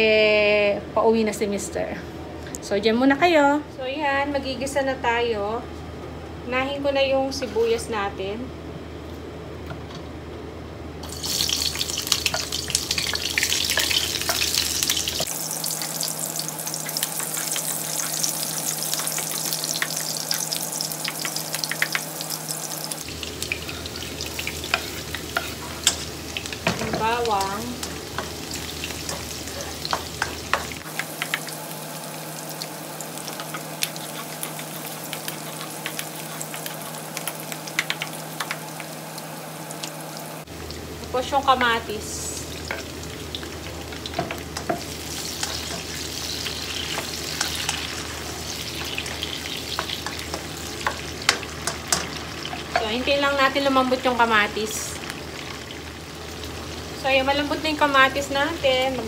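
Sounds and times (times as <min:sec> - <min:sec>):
onion and garlic sizzling in oil: 0:11.0 - 0:59.0
spatula scraping a pan: 0:23.5 - 0:27.0, 0:27.8 - 0:30.8, 0:33.4 - 0:37.0.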